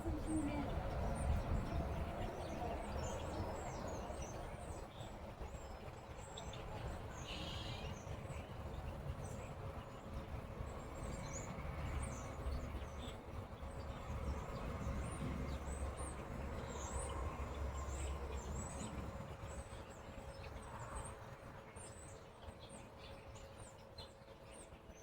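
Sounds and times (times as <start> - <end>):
small birds chirping: 0.0 - 5.1
low outdoor background rumble: 0.0 - 25.0.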